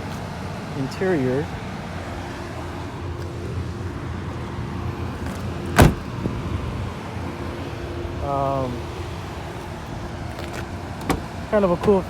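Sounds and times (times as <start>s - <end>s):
car door clunk: 5.2s - 6.5s, 10.4s - 12.0s.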